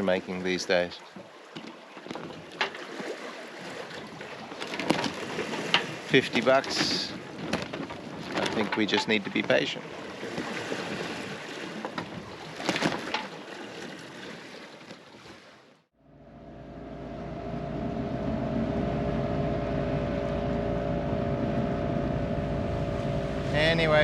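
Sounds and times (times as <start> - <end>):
wind and water rushing: 0.0 - 15.8, 16.6 - 24.0
marine engine running: 16.0 - 24.0.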